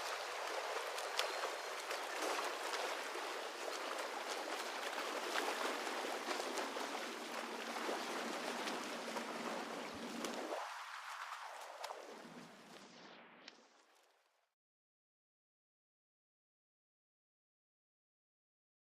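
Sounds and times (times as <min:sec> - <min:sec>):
scattered crackles: 0:08.5 - 0:14.3.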